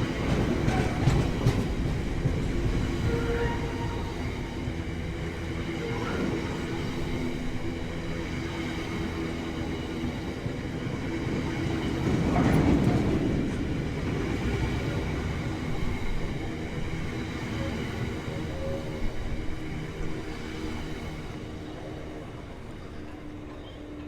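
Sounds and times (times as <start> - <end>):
diesel train passing: 0.0 - 24.0.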